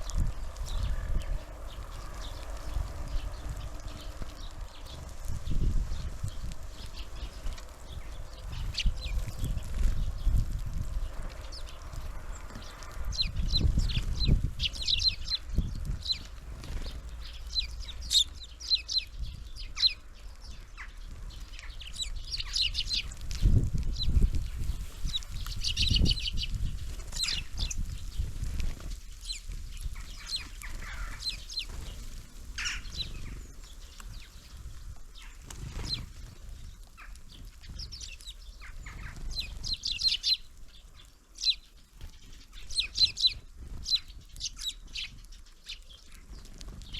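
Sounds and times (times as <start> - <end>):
small songbirds chirping: 0.0 - 46.9.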